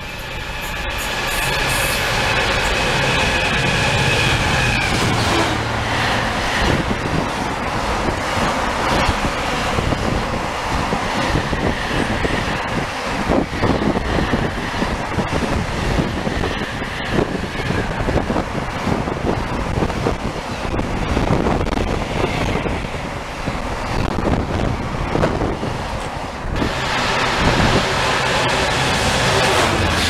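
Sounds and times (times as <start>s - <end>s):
diesel locomotive engine: 0.0s - 30.0s
wheels clattering on rail joints: 0.5s - 30.0s
freight wagons rumbling: 1.4s - 30.0s.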